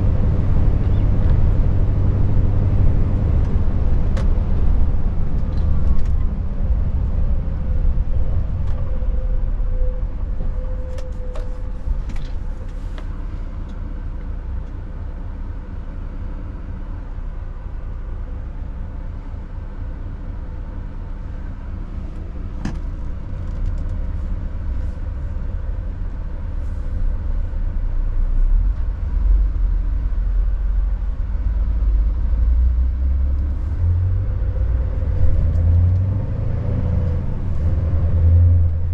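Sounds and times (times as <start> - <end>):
diesel engine rumbling: 0.0 - 38.9
road noise: 0.0 - 38.9.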